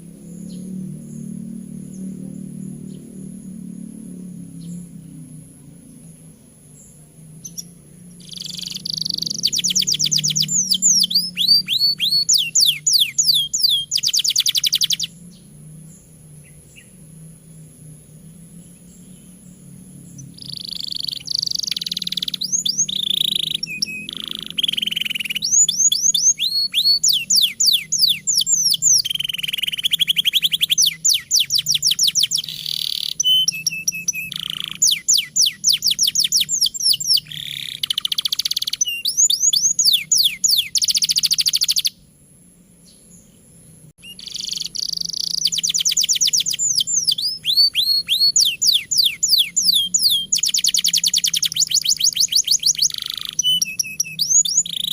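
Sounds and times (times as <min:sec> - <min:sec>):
canary singing trills: 0:00.0 - 0:42.1, 0:42.8 - 0:54.9.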